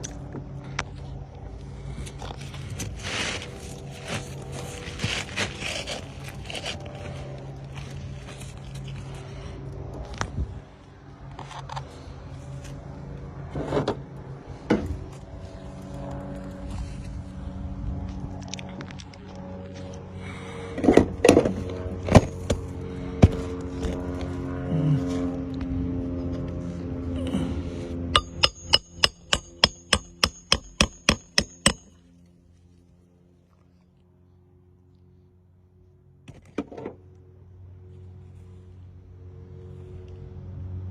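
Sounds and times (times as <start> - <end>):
motor hum: 0.0 - 34.8
scraping rustle: 2.3 - 7.2
hammer striking nail: 28.2 - 31.9.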